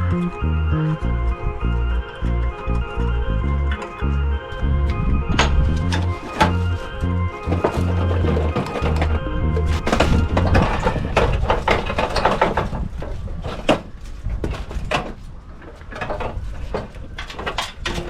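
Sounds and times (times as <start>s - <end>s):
background music: 0.0s - 11.2s
tools knocking and clattering: 5.4s - 15.2s, 15.9s - 18.0s.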